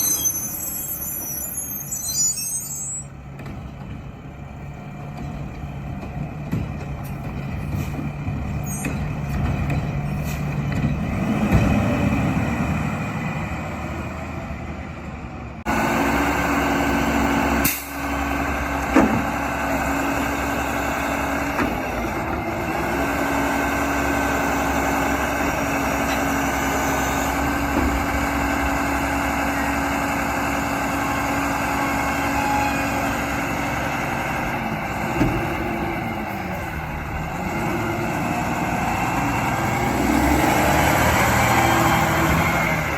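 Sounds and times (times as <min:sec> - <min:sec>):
diesel truck engine drone: 0:00.0 - 0:42.9.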